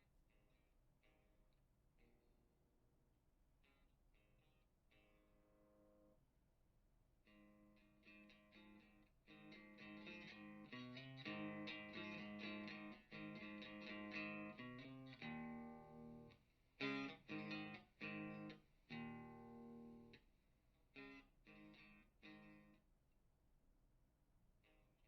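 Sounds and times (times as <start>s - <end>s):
electric guitar through amplifier: 7.3s - 20.2s, 21.0s - 22.8s.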